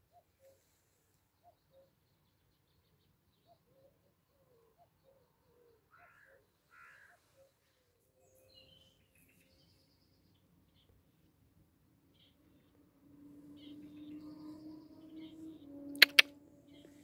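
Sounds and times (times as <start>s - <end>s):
soft low bird calls: 12.1s - 17.0s
harsh bird calls: 13.5s - 17.0s.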